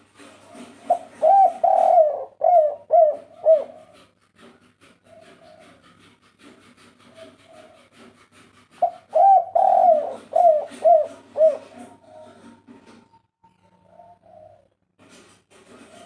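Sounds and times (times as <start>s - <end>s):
dove cooing: 0.2s - 4.2s, 5.0s - 5.9s, 8.8s - 12.7s, 13.6s - 14.8s.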